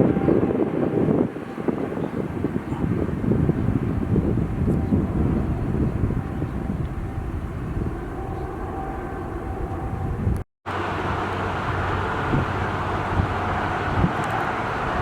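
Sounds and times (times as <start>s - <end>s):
jet engine rumble: 0.0s - 15.0s
wind buffeting microphone: 0.0s - 15.0s
engine hiss with low hum: 10.7s - 15.0s.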